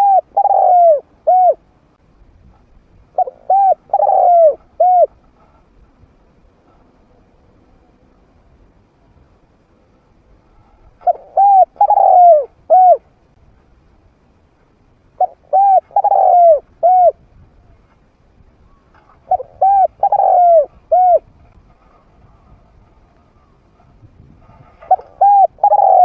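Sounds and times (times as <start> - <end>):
dove cooing: 0.0 - 1.7, 3.1 - 5.2, 11.0 - 13.1, 15.2 - 17.2, 18.7 - 21.4, 24.8 - 26.0.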